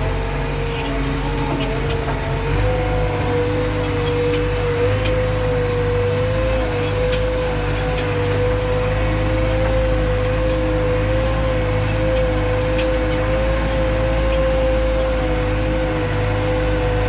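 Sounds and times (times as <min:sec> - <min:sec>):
diesel engine drone with whine: 0:00.0 - 0:17.0.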